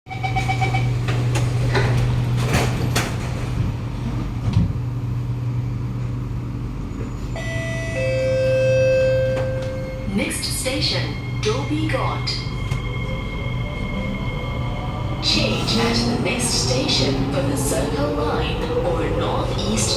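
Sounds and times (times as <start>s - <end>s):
train interior low hum: 0.1s - 19.9s
sliding doors shutting: 0.5s - 4.9s.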